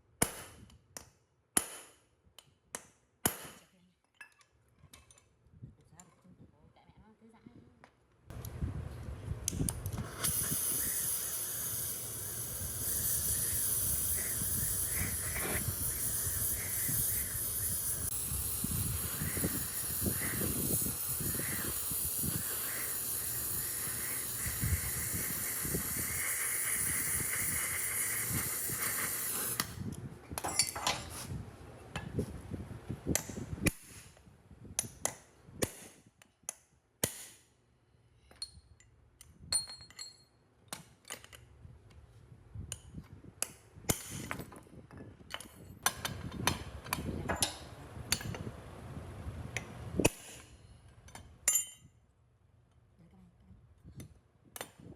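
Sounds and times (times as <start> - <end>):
high-pressure spray hissing: 10.0 - 29.8.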